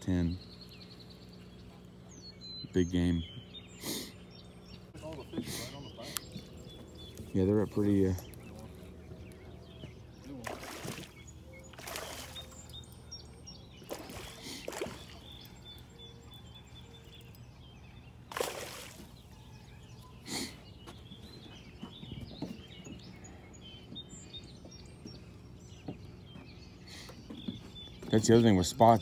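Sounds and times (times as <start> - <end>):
small birds calling: 0.0 - 29.0
steady low hum: 0.0 - 29.0
water swishes and splashes: 10.2 - 12.7, 13.8 - 15.4, 18.3 - 19.2.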